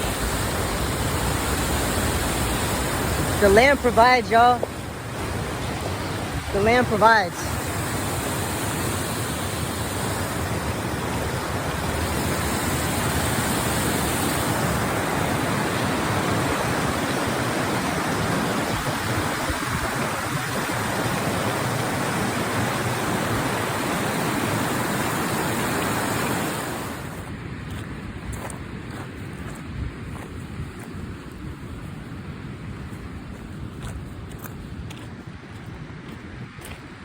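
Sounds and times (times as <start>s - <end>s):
river water rushing: 0.0s - 27.9s.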